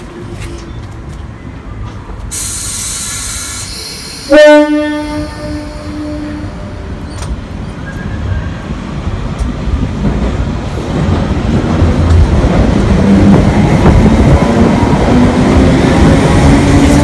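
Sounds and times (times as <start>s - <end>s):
train rumble and wheel noise: 0.0s - 17.0s
train horn blast: 4.2s - 7.0s.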